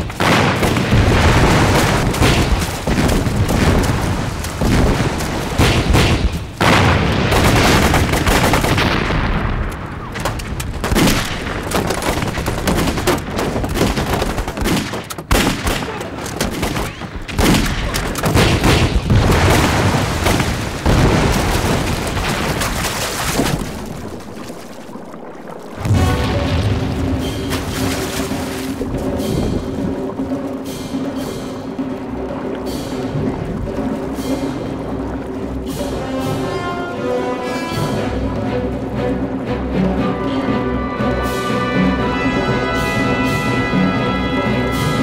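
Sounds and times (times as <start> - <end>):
booming blasts: 0.0 - 24.0, 25.7 - 30.0
machine-gun bursts: 7.3 - 8.9.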